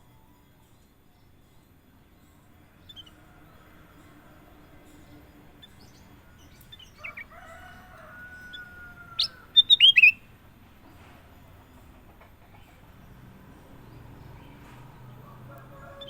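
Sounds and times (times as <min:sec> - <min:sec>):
bird singing whistled notes: 0:09.2 - 0:10.2.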